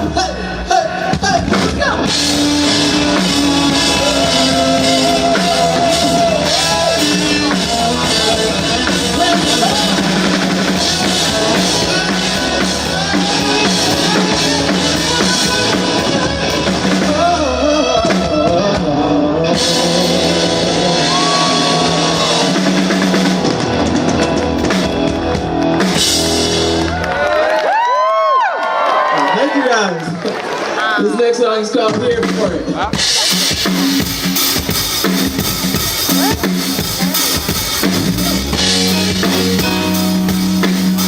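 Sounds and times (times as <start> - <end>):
person singing: 0.0 - 23.6
guitar: 0.0 - 27.4, 32.6 - 41.0
drum kit: 0.0 - 27.5, 31.8 - 41.0.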